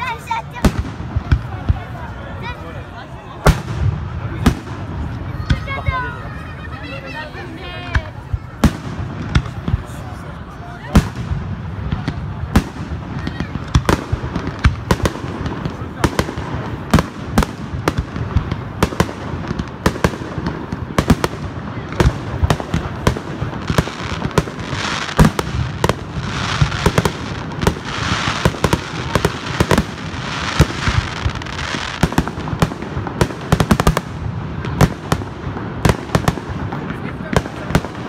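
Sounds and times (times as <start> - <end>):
fireworks bangs: 0.0 - 38.0
fireworks hiss: 11.0 - 38.0.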